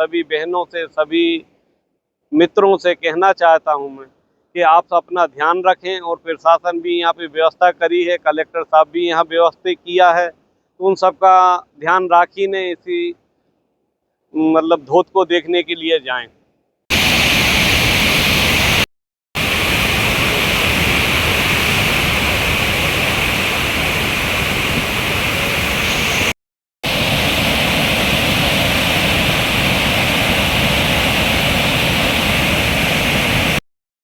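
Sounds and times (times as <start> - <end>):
waterfall rushing: 16.9 - 18.8, 19.4 - 33.6.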